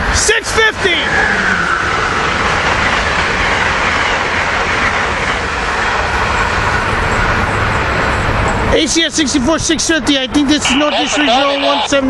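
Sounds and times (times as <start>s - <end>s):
train wheels rushing on rail: 0.0s - 12.0s.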